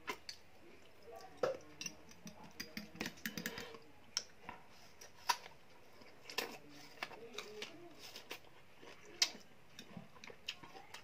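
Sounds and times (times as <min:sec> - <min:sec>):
crunchy chewing: 0:04.8 - 0:11.0.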